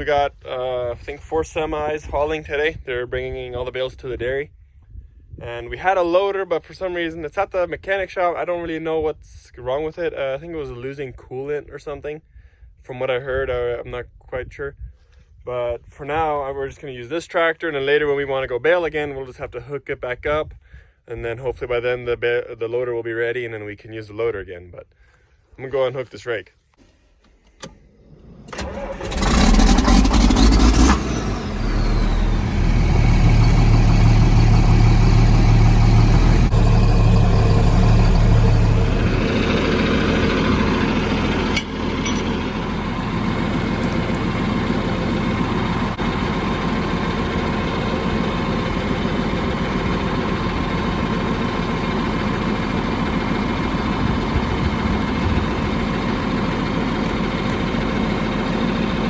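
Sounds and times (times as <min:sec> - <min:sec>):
tractor engine starting and idling: 0:27.5 - 0:59.0.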